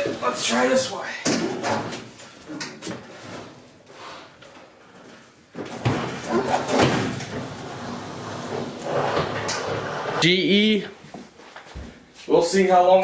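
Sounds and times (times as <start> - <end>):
metal cabinet scraping and knocking: 5.6 - 10.3.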